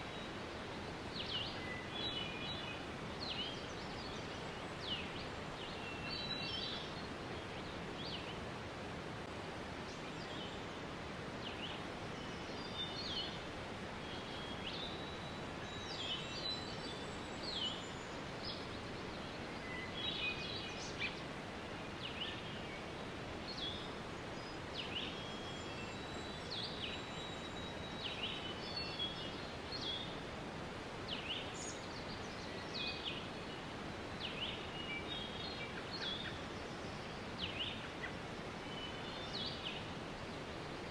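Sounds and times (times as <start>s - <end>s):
small birds chirping: 31.1s - 40.9s.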